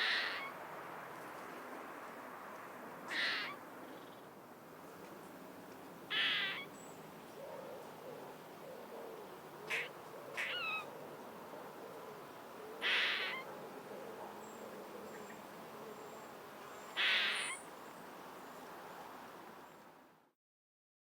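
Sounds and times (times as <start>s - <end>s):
faint outdoor background: 0.0s - 20.4s
bird calls: 3.1s - 4.2s, 6.1s - 6.9s, 9.6s - 10.9s, 12.8s - 13.5s, 16.8s - 17.7s.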